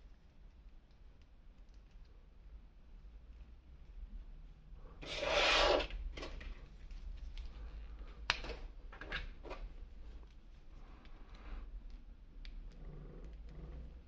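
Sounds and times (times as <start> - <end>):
packaging rustling scrape: 5.0 - 6.3.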